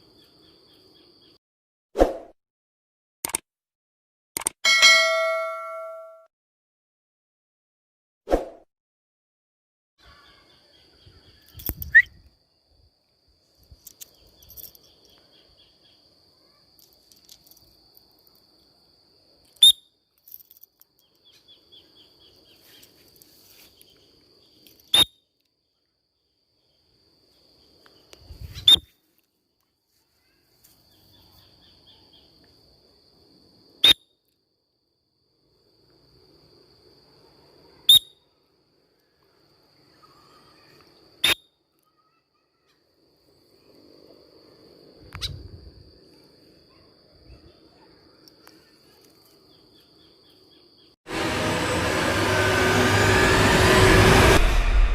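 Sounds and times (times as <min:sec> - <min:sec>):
sharp loud clicks: 0:03.2 - 0:03.5, 0:04.4 - 0:04.6
high insect trill: 0:10.0 - 0:51.3.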